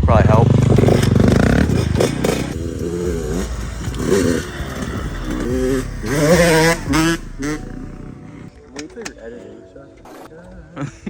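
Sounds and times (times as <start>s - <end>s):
dirt bike engine revving: 0.0s - 8.6s.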